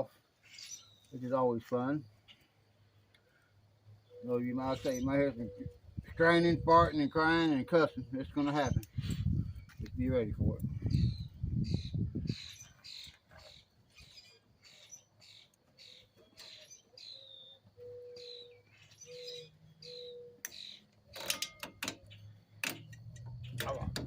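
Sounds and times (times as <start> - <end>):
birds chirping: 0.0 - 24.0
sharp metallic clicks: 20.4 - 24.0.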